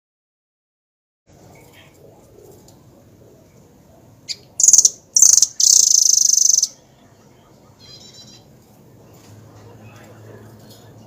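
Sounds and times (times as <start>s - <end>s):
songbird trilling: 4.3s - 6.9s, 7.8s - 8.5s.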